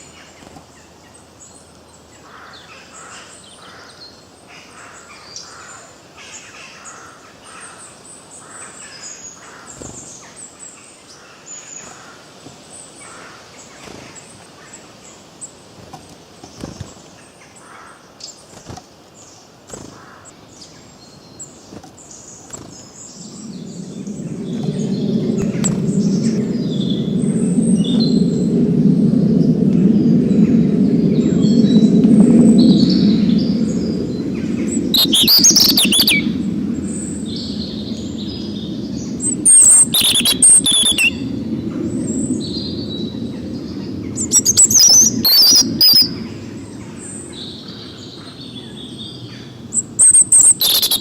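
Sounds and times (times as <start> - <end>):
wild birds chirping and singing: 22.8 - 51.0
loud low steady sound: 23.2 - 48.8.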